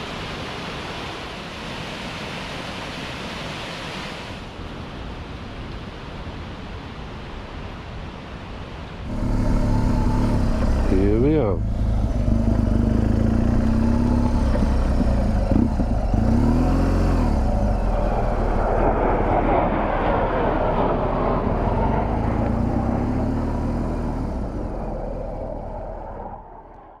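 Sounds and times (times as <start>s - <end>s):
motorcycle engine running: 9.0s - 26.2s.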